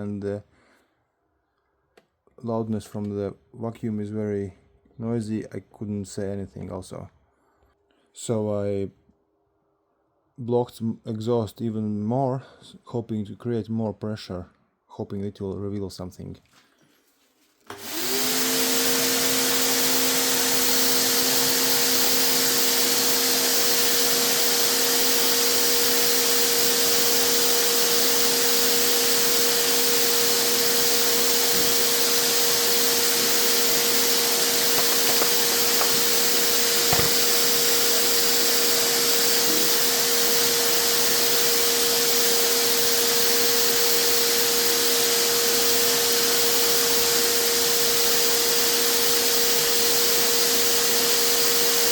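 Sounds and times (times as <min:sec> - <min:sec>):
vacuum cleaner motor whine: 0:17.6 - 0:51.9.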